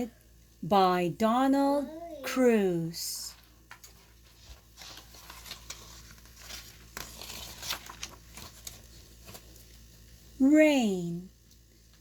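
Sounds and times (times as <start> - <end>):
book pages rustling: 3.3 - 9.8.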